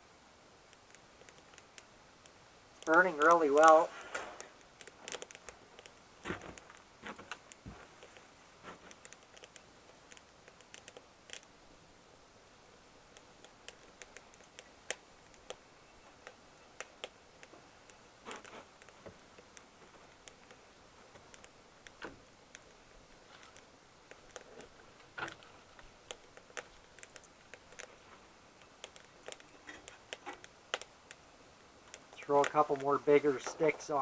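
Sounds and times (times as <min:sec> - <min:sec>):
wood fire crackling: 0:00.0 - 0:34.0
sharp pops and snaps: 0:00.3 - 0:34.0.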